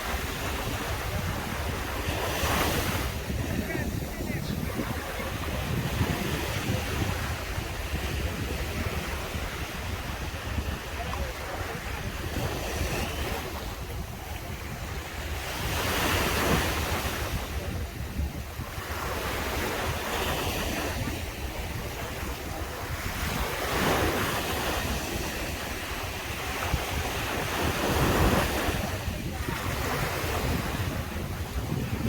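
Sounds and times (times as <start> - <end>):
waves breaking on shore: 0.0 - 32.0.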